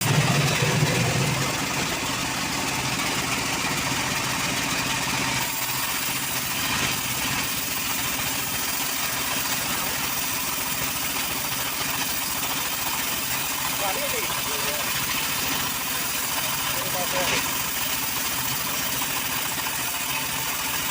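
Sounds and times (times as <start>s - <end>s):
engine idling: 0.0s - 20.9s.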